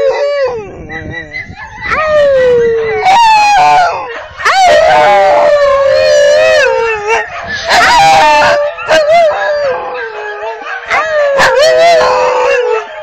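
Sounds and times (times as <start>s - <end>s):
dog howling: 0.0s - 13.0s.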